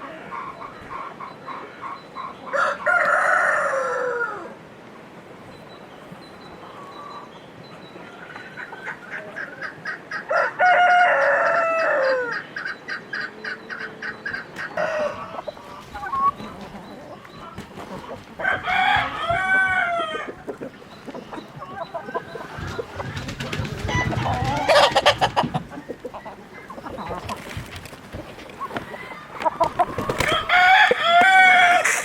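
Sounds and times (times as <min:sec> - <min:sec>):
chickens clucking: 0:00.0 - 0:04.6, 0:05.3 - 0:32.0
loud drawn-out chicken call: 0:29.9 - 0:32.0.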